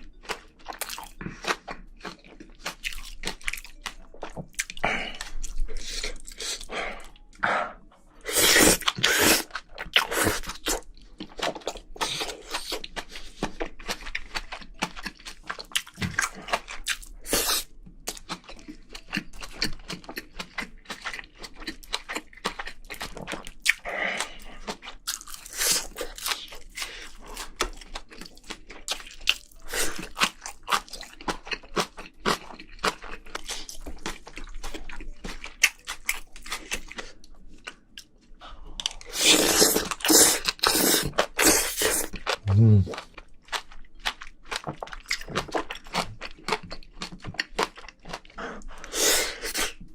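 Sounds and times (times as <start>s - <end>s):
chewing and crunching food: 0.0s - 49.9s.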